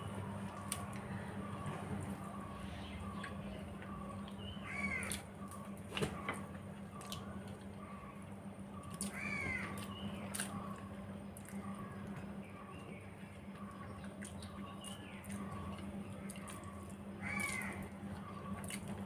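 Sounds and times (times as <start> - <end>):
clicks and smacks of eating: 0.4 - 1.1, 3.2 - 7.8, 8.8 - 12.3, 13.3 - 19.0.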